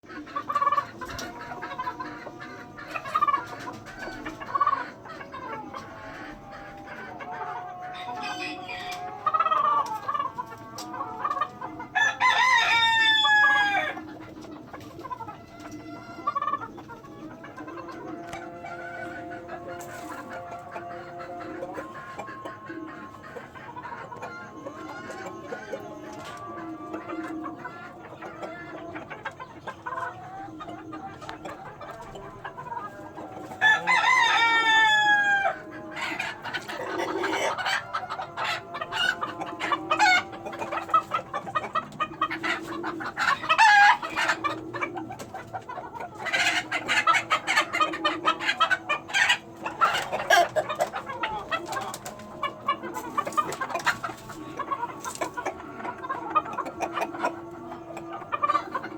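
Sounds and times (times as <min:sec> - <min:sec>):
chickens clucking: 0:00.0 - 0:58.9
rooster crowing: 0:11.9 - 0:14.0, 0:33.3 - 0:40.7.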